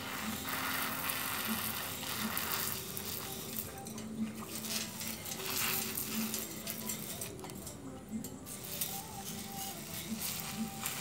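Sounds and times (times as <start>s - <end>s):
water spattering: 0.0s - 3.6s
pressure sprayer hissing: 0.0s - 3.7s, 8.6s - 11.0s.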